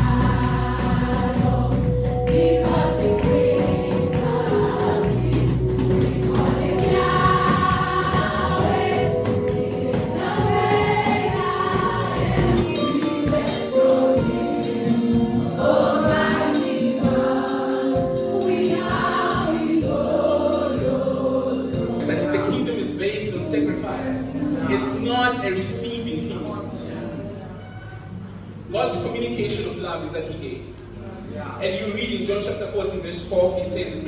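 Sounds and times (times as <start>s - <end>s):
choir singing gospel music: 0.0s - 25.9s.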